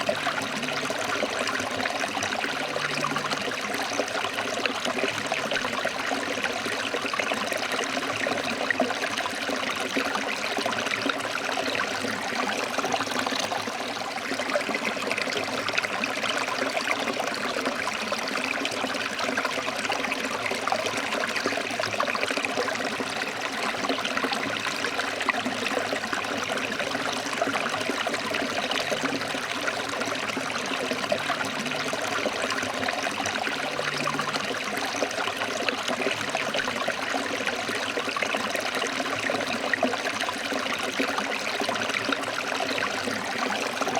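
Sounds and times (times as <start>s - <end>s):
stream flowing over rocks: 0.0s - 43.9s.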